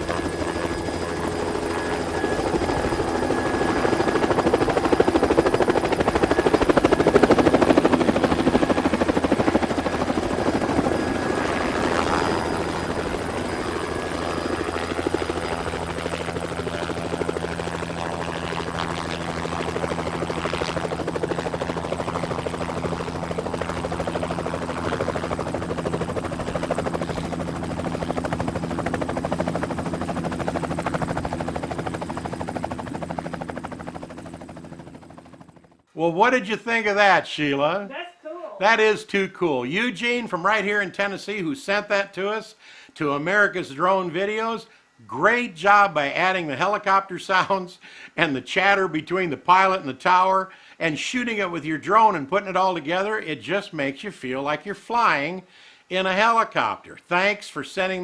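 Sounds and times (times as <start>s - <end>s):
helicopter rotor beating: 0.0s - 35.9s.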